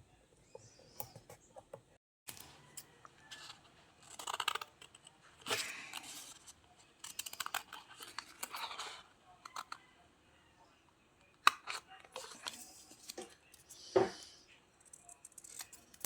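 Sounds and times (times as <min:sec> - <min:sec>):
scissors snipping paper: 0:03.3 - 0:09.8, 0:14.9 - 0:16.0.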